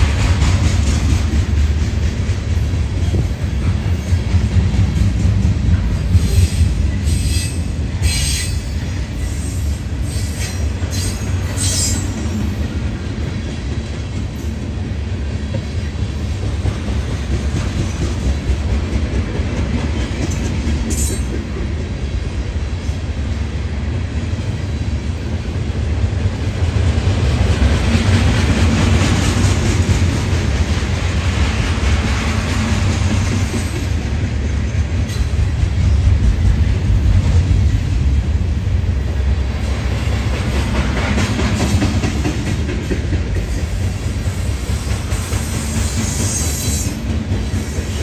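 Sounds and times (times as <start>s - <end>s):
steel wheels rumbling on rail: 0.0s - 48.0s
hiss: 39.6s - 48.0s.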